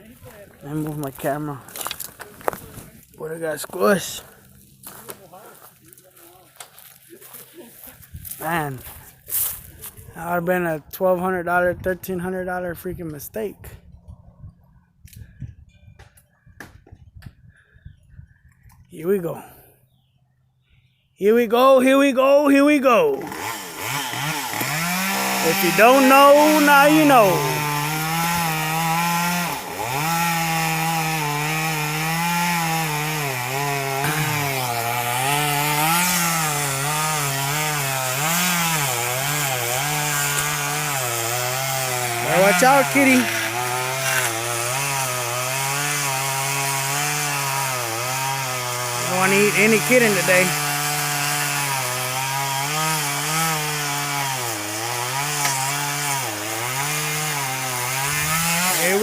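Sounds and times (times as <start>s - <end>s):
chainsaw cutting wood: 22.6s - 59.0s.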